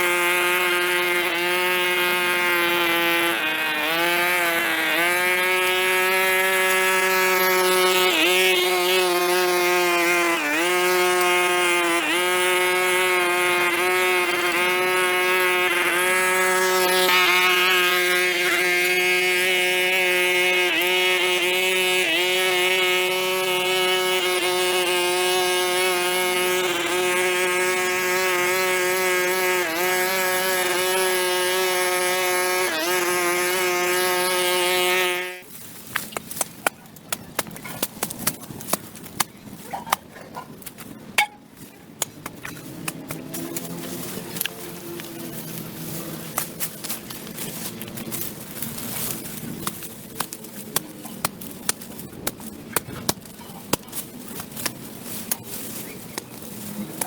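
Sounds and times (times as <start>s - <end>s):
small engine tool running: 0.0s - 35.5s.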